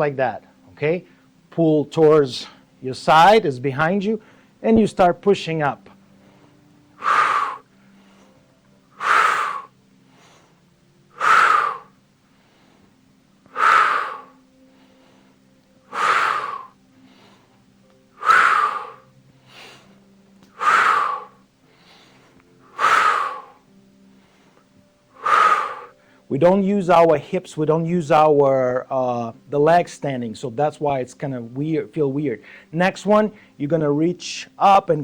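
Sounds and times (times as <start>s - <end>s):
man exhaling forcefully: 7.0s - 7.7s, 9.0s - 9.7s, 11.1s - 12.0s, 13.5s - 14.4s, 15.9s - 16.8s, 18.2s - 19.7s, 20.5s - 21.4s, 22.7s - 23.6s, 25.2s - 25.9s.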